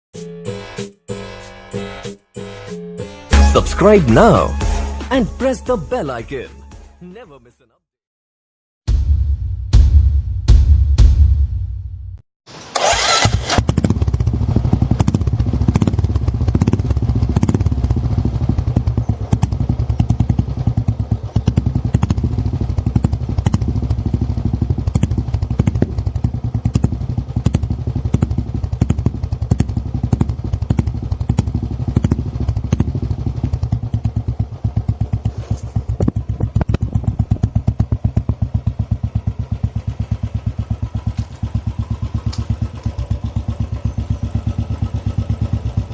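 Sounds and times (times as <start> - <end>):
motorcycle idling: 12.8 - 45.9.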